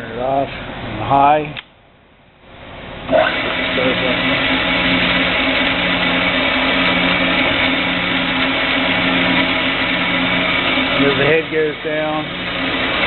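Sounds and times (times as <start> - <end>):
band saw running with high whine: 3.1 - 13.0.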